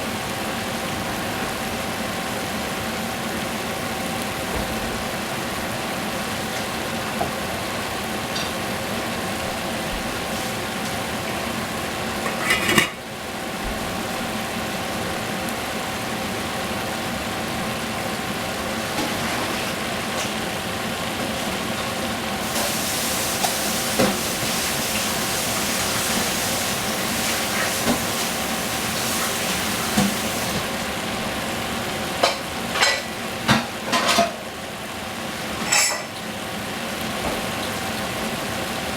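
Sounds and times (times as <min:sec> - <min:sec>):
food sizzling in a pan: 0:00.1 - 0:38.9
utensil clinking against pan: 0:12.2 - 0:13.0.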